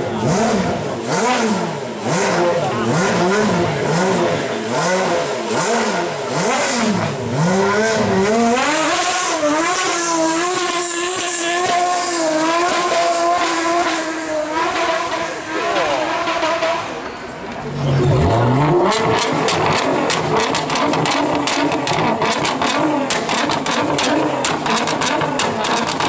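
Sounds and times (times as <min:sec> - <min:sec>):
car engine revving: 0:00.0 - 0:26.0
tyres spinning in burnout: 0:05.8 - 0:26.0.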